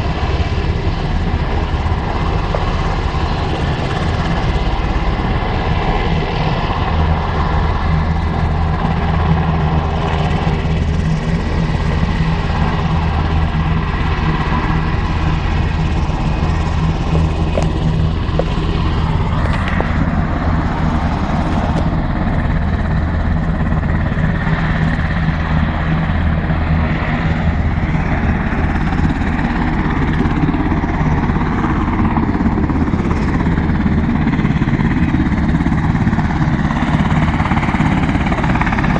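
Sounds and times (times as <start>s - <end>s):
turbine aircraft engine drone: 0.0s - 38.9s.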